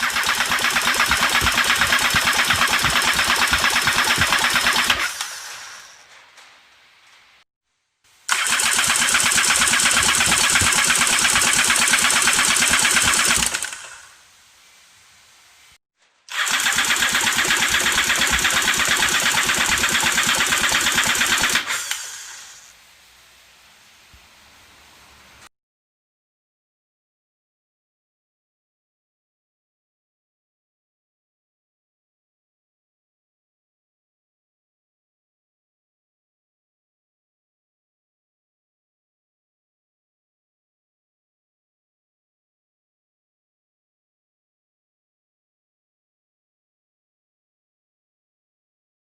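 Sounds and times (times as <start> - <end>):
engine cranked by starter: 0.0 - 6.1, 8.3 - 14.2, 16.3 - 22.6.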